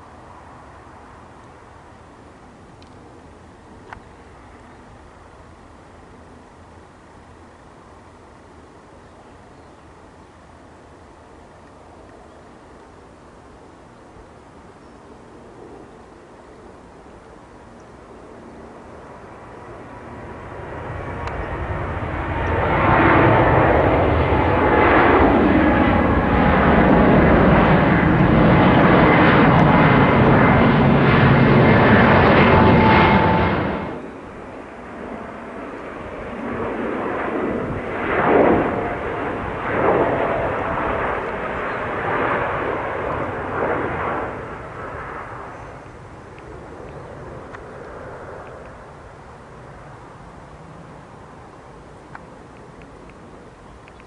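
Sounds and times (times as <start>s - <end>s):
quieter jet with falling tone: 17.5s - 54.0s
jet engines whining: 18.2s - 54.0s.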